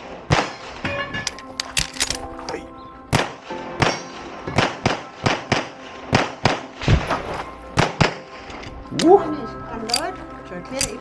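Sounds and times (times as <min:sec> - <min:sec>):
pistol shots: 0:00.2 - 0:00.9, 0:03.1 - 0:07.2, 0:07.8 - 0:08.3.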